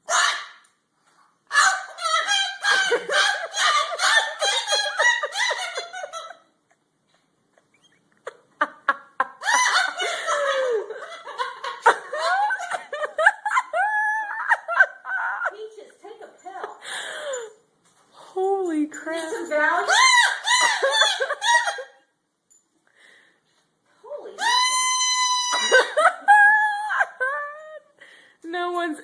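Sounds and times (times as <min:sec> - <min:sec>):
parrot chattering and whistling: 0:01.5 - 0:06.4, 0:19.8 - 0:21.9
parrot cackling laugh: 0:01.5 - 0:06.8, 0:07.6 - 0:15.6, 0:19.8 - 0:22.1, 0:24.4 - 0:27.9.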